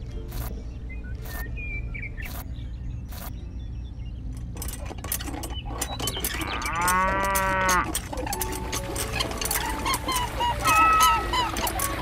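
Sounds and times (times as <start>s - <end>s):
cow mooing: 6.4s - 8.0s.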